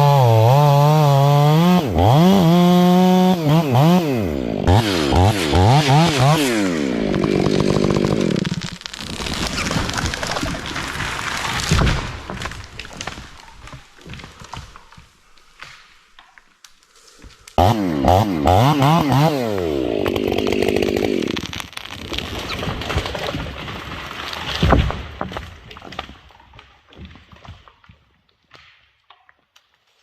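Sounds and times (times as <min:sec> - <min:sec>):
chainsaw revving: 0:00.0 - 0:08.8, 0:17.6 - 0:21.5.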